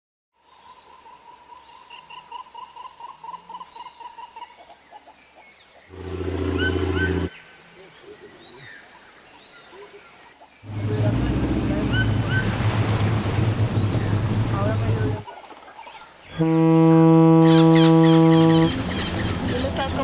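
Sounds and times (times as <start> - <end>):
low drawn-out animal roar: 5.9 - 7.3, 10.7 - 15.2
rising bird chirps: 5.9 - 7.3, 10.7 - 15.2
rhythmic chirping call: 5.9 - 7.4, 10.7 - 15.2, 16.3 - 20.0
high insect buzz: 5.9 - 7.8, 16.2 - 18.9.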